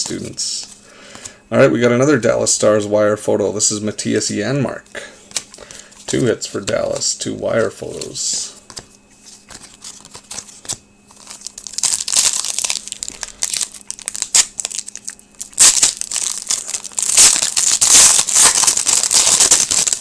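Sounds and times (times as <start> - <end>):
card pack wrappers crinkling and tearing: 7.6 - 20.0.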